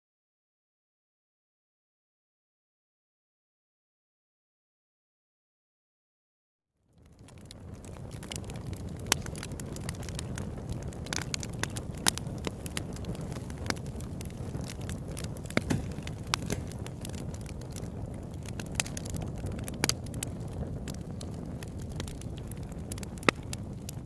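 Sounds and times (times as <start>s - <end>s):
campfire crackling and popping: 6.9s - 24.0s.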